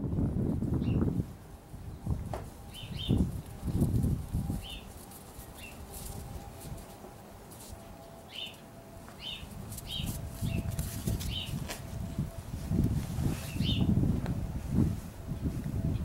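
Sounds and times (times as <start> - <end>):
small birds chirping: 2.7 - 3.2, 4.5 - 5.9, 8.3 - 11.6
puppies scuffling on a toy: 3.2 - 12.0.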